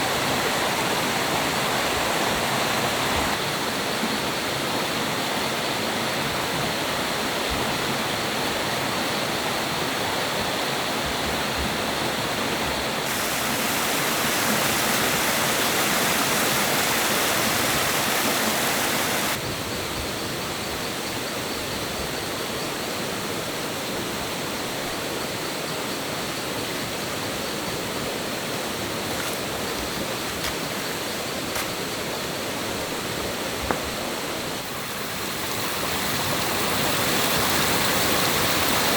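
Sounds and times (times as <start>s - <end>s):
stream water rushing: 0.0s - 19.4s, 26.6s - 38.9s.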